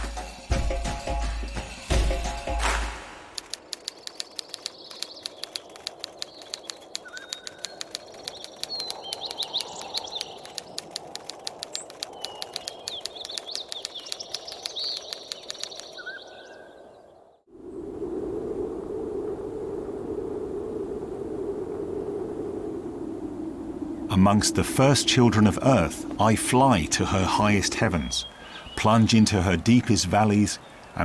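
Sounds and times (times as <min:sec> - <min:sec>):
sharp clicks: 0:03.4 - 0:16.2
birds chirping: 0:03.4 - 0:17.4, 0:24.0 - 0:31.0
background hiss: 0:17.8 - 0:31.0.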